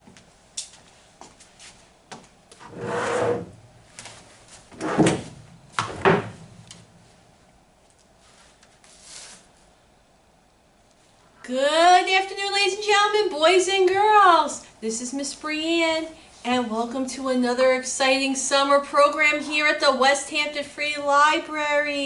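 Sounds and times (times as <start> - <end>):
scraping slide: 2.6 - 3.6.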